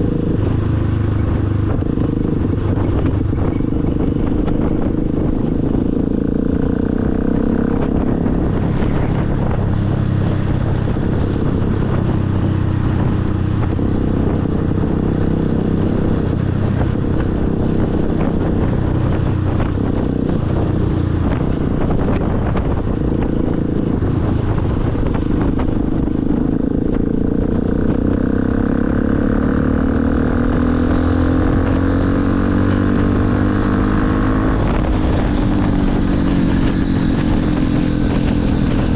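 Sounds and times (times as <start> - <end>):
motorcycle engine running: 0.0 - 38.9
wind rumble on microphone: 0.0 - 38.9.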